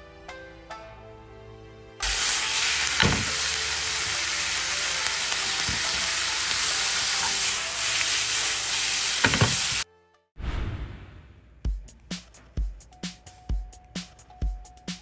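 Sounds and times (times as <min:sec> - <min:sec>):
food sizzling in a frying pan: 0:02.0 - 0:09.9.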